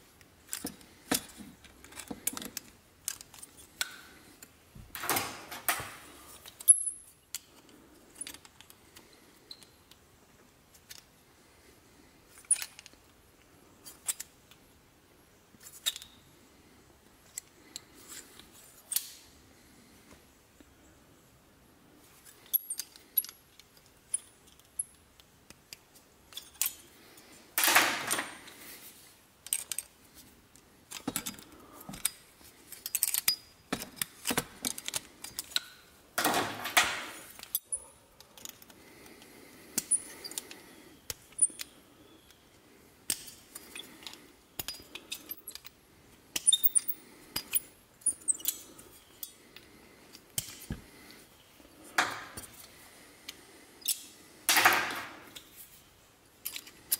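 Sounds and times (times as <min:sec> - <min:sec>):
small metal pieces clinking: 0:06.4 - 0:07.4.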